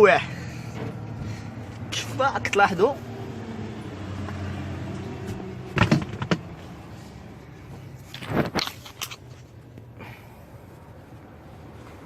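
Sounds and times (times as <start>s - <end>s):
sharp knocks and rustles: 5.2s - 6.6s.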